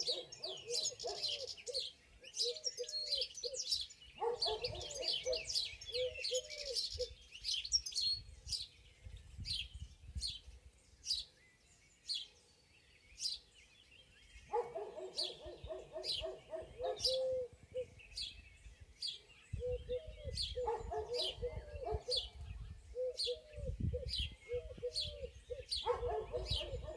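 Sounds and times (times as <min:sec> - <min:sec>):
high falling bird chirp: 0:00.0 - 0:26.9.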